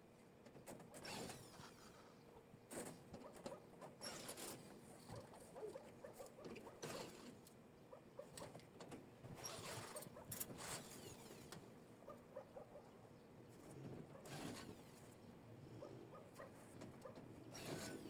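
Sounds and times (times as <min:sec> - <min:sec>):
faint scratching: 0:09.3 - 0:12.9, 0:13.5 - 0:18.0.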